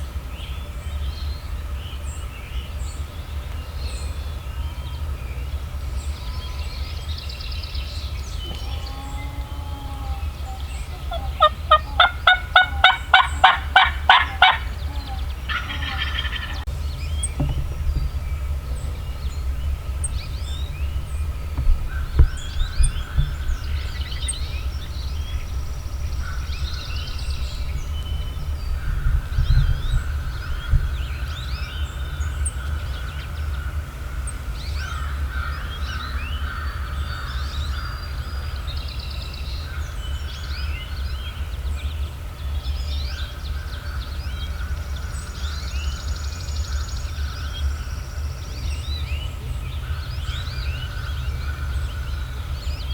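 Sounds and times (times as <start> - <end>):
steady low rumble: 0.0 - 36.1
songbirds singing: 0.0 - 52.9
dull thumps: 10.9 - 31.3.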